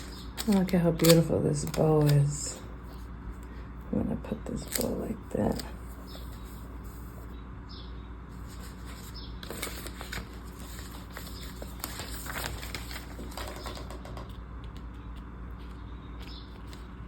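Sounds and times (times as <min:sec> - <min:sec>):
paper rustling: 0:00.0 - 0:03.1, 0:04.5 - 0:07.3, 0:08.3 - 0:14.0.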